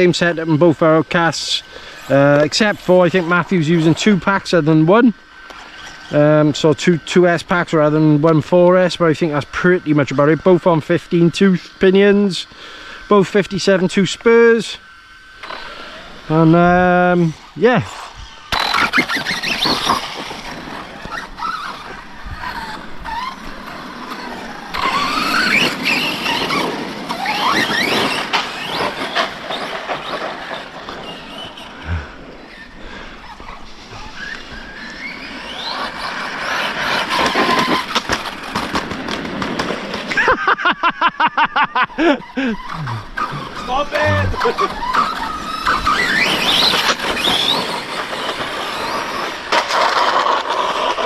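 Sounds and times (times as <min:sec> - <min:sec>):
electric motors whining: 0:00.0 - 0:41.2, 0:41.8 - 0:51.0
fast stuttering pulse: 0:15.4 - 0:32.2, 0:42.4 - 0:51.0.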